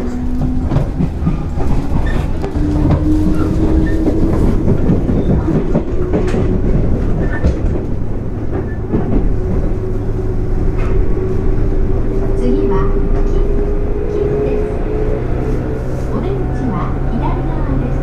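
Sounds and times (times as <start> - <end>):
wheels clicking over rail joints: 0.0 - 11.2
train rumble: 0.0 - 18.0.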